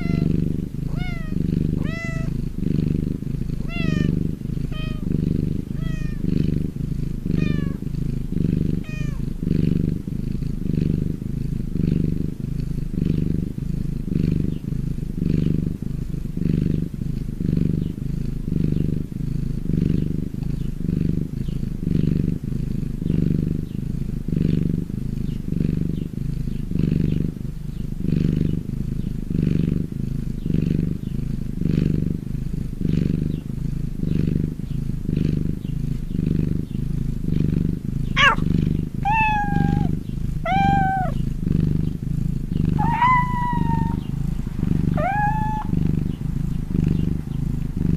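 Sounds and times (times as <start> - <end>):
cat meowing: 0.0 - 0.3, 0.9 - 2.4, 3.6 - 4.1, 4.7 - 5.1, 5.7 - 6.3, 7.4 - 7.8, 8.8 - 9.2, 38.2 - 41.2, 42.8 - 44.0, 44.9 - 45.8
cat purring: 0.0 - 47.9.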